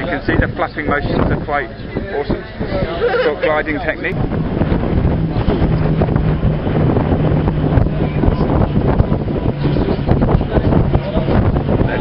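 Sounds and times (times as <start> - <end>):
strong wind buffeting microphone: 0.0 - 12.0
steady low hum: 4.1 - 12.0.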